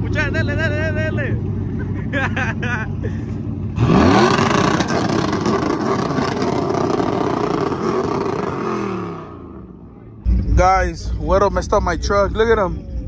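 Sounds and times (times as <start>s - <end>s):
truck engine revving high: 0.0s - 11.7s.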